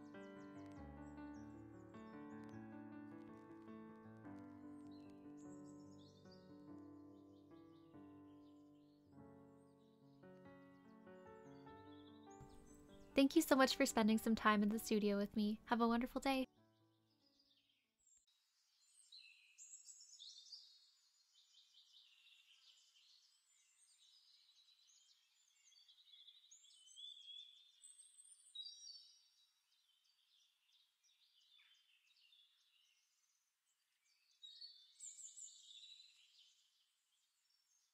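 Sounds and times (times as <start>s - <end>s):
small birds chirping and trilling: 17.0s - 37.9s.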